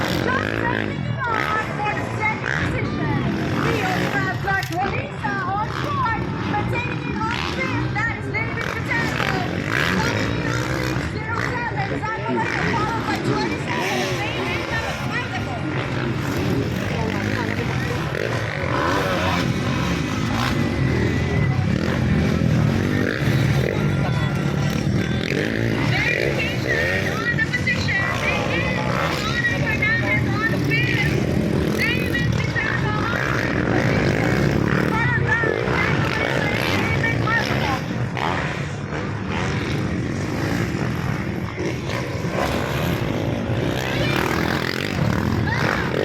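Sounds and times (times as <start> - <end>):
dirt bike engines droning: 0.0 - 46.0
motocross motorcycles revving: 0.0 - 46.0.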